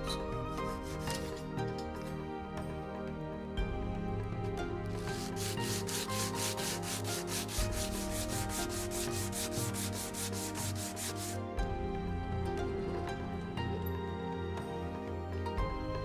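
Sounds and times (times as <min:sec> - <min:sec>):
hand sanding wood: 0:00.0 - 0:01.5, 0:05.0 - 0:11.4.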